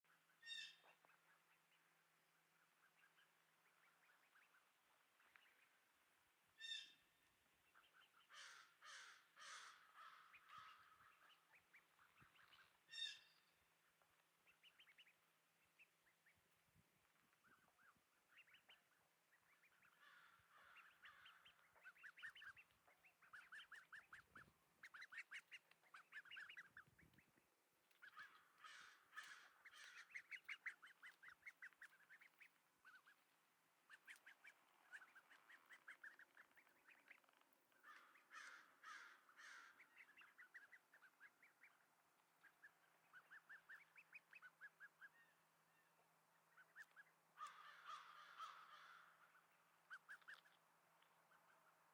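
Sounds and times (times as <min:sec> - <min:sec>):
duckling calling: 0:00.4 - 0:01.8, 0:06.6 - 0:07.1, 0:07.7 - 0:13.5, 0:17.4 - 0:41.8, 0:42.4 - 0:45.4, 0:46.5 - 0:50.6.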